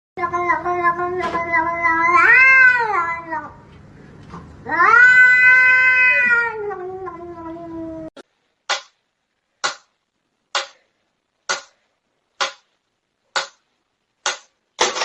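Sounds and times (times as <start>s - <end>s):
cat yowling: 0.2s - 3.6s, 4.6s - 8.2s.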